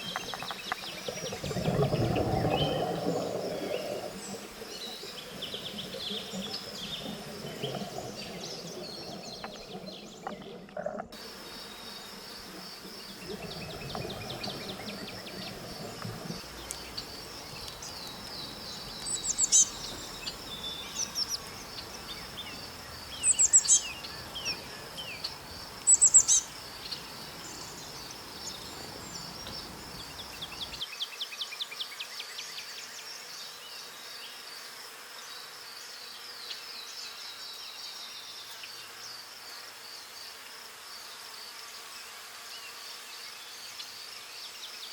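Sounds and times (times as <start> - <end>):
birds chirping: 0.0 - 30.8.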